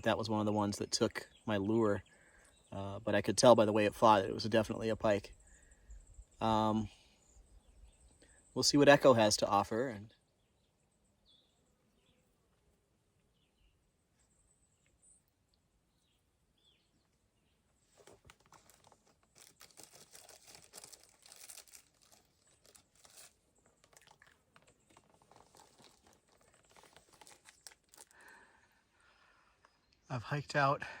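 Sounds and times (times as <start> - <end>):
faint bird chirps: 1.2 - 3.1, 4.8 - 9.0, 9.9 - 18.2, 19.4 - 30.8
footsteps crunching on dry brush: 17.9 - 28.1.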